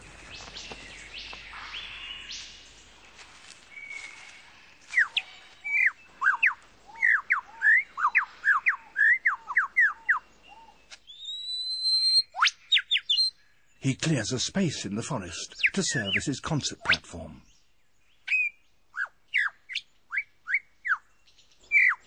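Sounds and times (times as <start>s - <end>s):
lyrebird whistling: 4.9s - 13.3s, 18.3s - 21.0s, 21.7s - 22.0s.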